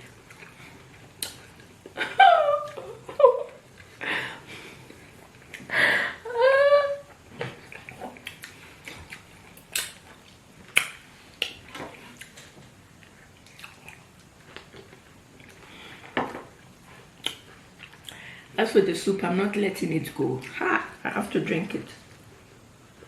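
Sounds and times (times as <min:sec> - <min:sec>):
person chewing and swallowing: 0:00.0 - 0:02.0, 0:07.2 - 0:18.2
mouth clicks and smacks: 0:07.7 - 0:12.5, 0:17.2 - 0:18.2.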